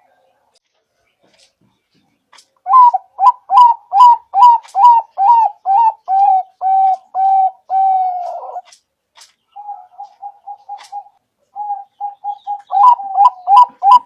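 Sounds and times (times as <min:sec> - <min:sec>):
dove cooing: 0:02.7 - 0:08.7, 0:09.6 - 0:14.0.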